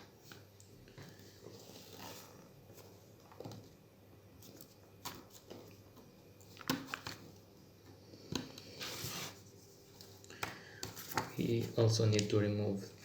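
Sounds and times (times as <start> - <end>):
short scrape: 8.7 - 9.4.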